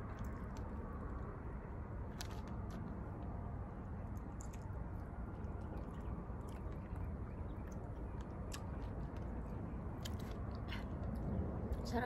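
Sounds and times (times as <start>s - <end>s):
people chewing and biting: 0.0s - 11.9s
low background rumble: 0.0s - 12.0s
wet mouth clicks and smacks: 4.1s - 7.0s.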